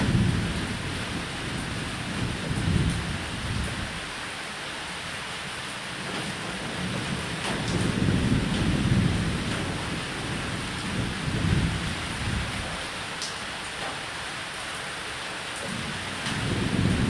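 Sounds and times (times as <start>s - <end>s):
low rolling thunder: 0.0s - 4.2s, 6.7s - 12.9s, 15.8s - 17.0s
rain on a roof: 0.0s - 17.0s.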